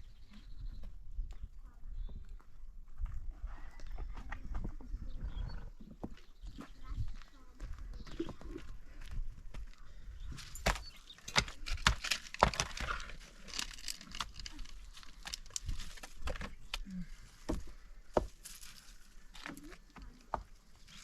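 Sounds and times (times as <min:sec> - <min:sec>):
rustling: 0:11.0 - 0:17.8.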